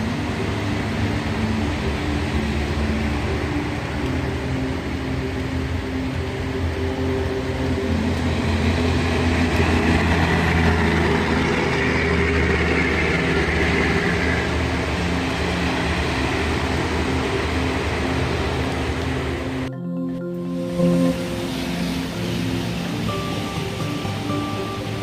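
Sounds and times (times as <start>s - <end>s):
heavy rain hissing: 0.0s - 19.7s, 20.5s - 25.0s
low mechanical hum: 0.0s - 19.7s.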